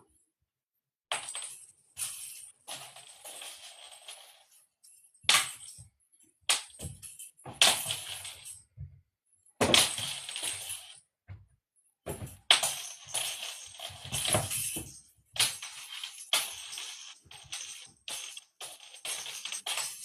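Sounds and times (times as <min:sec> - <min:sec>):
cat toy rattling and clinking: 0:12.4 - 0:20.0.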